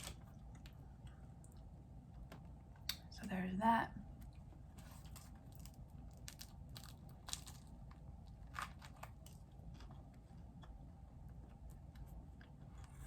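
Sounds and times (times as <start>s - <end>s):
person chewing bread: 4.2s - 13.0s.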